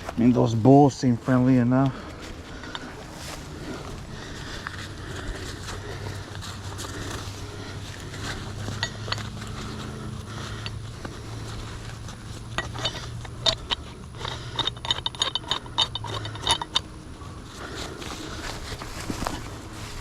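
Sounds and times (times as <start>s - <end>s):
low steady hum: 0.0s - 20.0s
metal hardware clinking: 8.6s - 9.6s, 12.5s - 16.9s.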